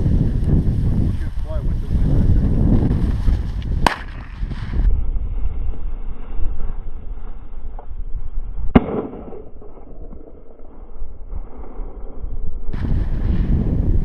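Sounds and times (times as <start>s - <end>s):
shotgun shot: 3.8s - 4.4s, 8.7s - 10.5s.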